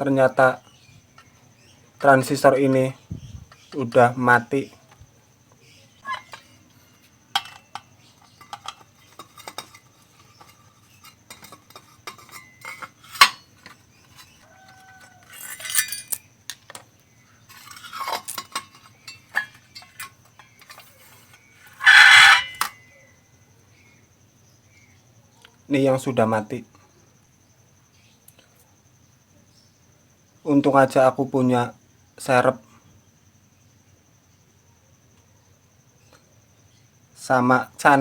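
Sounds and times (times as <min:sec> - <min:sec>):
metal tools clinking on workbench: 0:07.4 - 0:16.8, 0:17.5 - 0:22.8.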